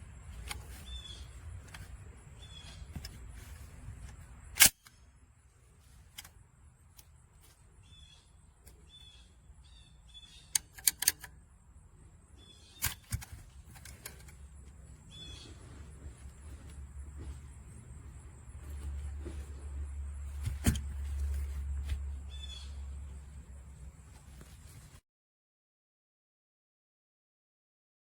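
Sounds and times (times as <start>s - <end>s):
birds chirping: 0.0s - 4.2s, 6.9s - 24.9s.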